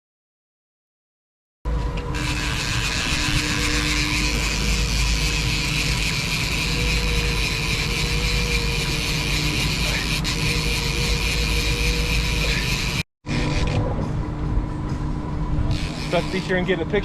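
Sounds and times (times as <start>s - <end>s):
boat engine humming: 1.7s - 17.0s.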